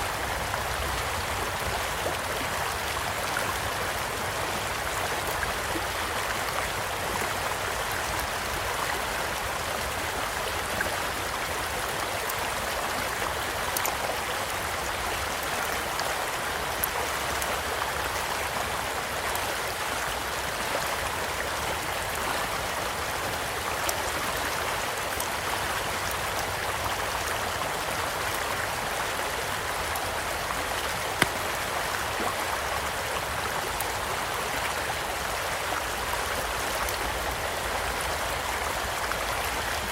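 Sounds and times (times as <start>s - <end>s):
shallow stream rushing: 0.0s - 39.9s
campfire crackling and popping: 31.1s - 31.8s.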